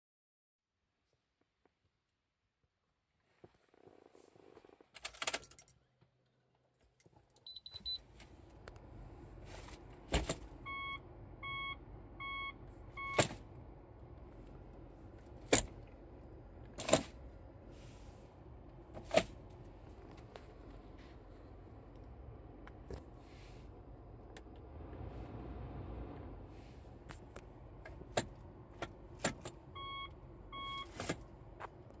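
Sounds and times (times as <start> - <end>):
keys jangling: 5.0 - 5.8
short beep: 10.7 - 13.2, 29.8 - 31.0
shift lever clicking: 28.1 - 29.6.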